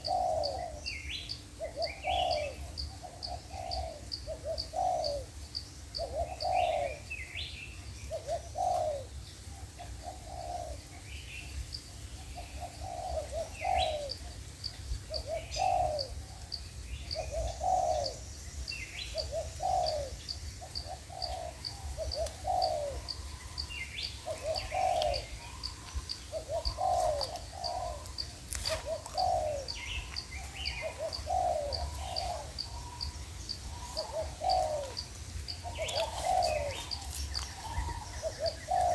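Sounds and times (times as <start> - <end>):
doves cooing: 0.0 - 38.9.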